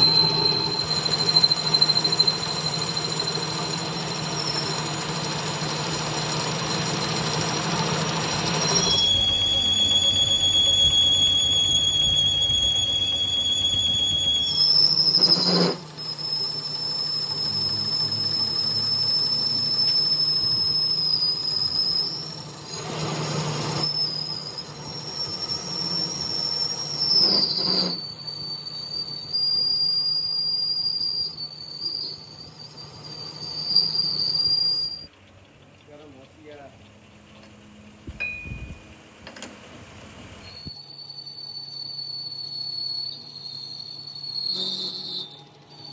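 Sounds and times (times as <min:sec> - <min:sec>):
low machine hum: 0:00.0 - 0:29.4, 0:34.8 - 0:40.7
high-pitched metal squeal: 0:00.0 - 0:35.1, 0:40.4 - 0:45.9.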